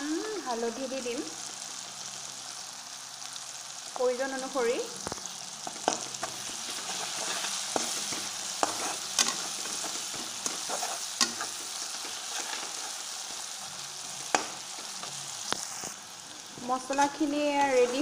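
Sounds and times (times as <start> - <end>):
paste sizzling in hot oil: 0.0 - 18.0
spatula scraping and knocking pan: 5.6 - 13.4, 14.0 - 15.2.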